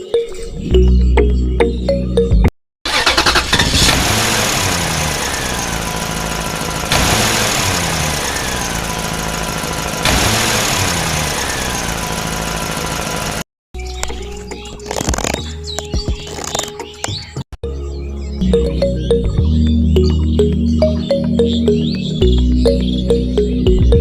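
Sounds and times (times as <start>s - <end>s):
engine running: 2.9s - 13.5s.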